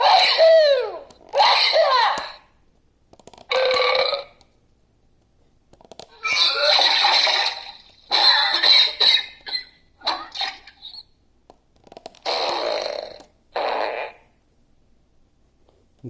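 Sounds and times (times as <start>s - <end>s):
toy playing recorded sound bites: 6.0s - 11.1s.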